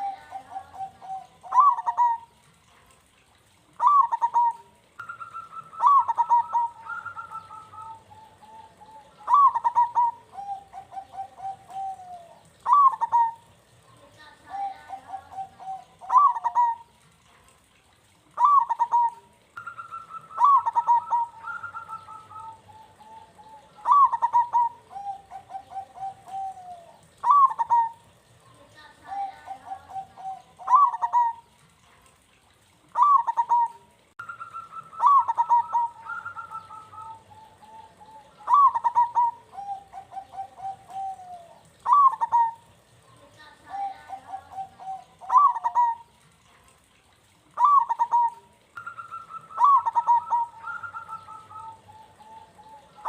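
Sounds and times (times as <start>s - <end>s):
dove cooing: 0.0s - 17.3s, 18.3s - 31.8s, 32.5s - 53.0s.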